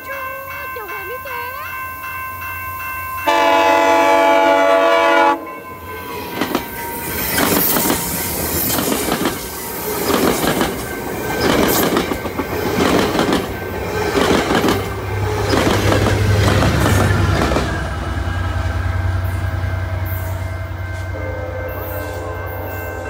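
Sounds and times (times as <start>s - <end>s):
train air horn chord: 3.2s - 5.5s, 20.0s - 23.0s
wheels clacking over rail joints: 6.1s - 18.5s.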